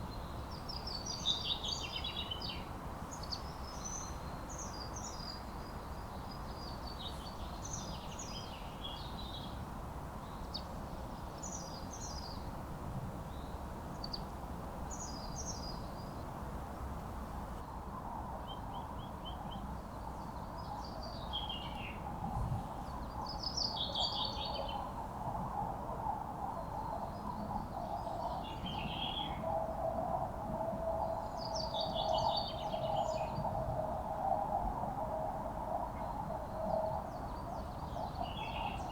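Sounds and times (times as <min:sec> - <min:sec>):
background noise: 0:00.0 - 0:38.9
songbird singing: 0:36.0 - 0:38.9.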